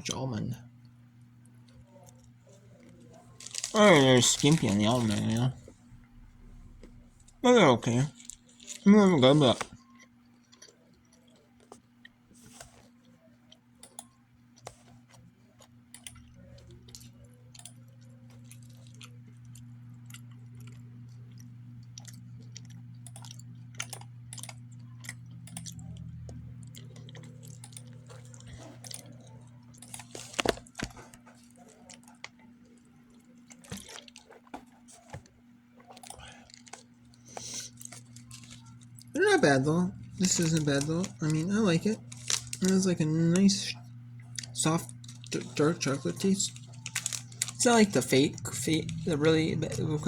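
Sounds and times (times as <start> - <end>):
steady low hum: 0.0 - 50.0
person chewing: 14.6 - 35.2, 35.9 - 39.2, 40.0 - 42.7, 44.2 - 50.0.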